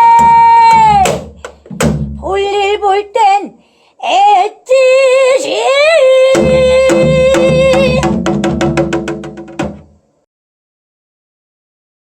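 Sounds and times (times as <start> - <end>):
person singing long notes: 0.0 - 1.3, 2.2 - 8.1
struck percussion: 0.0 - 2.5, 6.3 - 10.0
low accompaniment: 0.0 - 2.8, 6.4 - 9.5.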